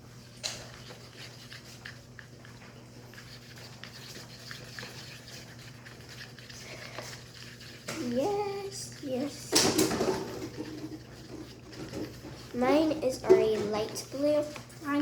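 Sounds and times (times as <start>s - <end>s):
sticks scraping and tapping: 9.3s - 15.0s.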